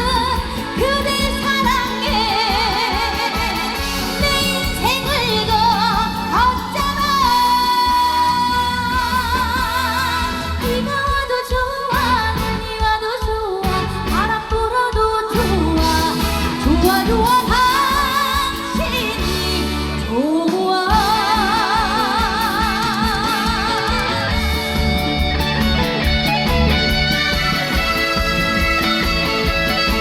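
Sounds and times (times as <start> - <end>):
woman singing: 0.0 - 25.1
backing band playing: 0.0 - 30.0.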